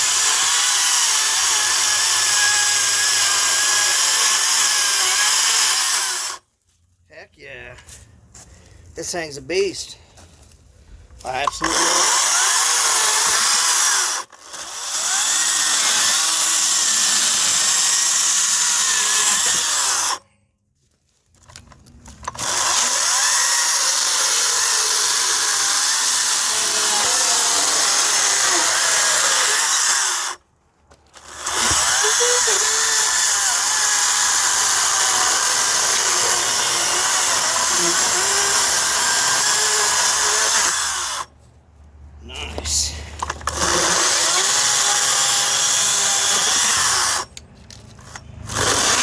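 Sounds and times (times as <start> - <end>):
electric chainsaw cutting wood: 0.0 - 6.4, 11.4 - 20.2, 22.2 - 30.4, 31.1 - 41.3, 43.2 - 47.3, 48.0 - 49.0.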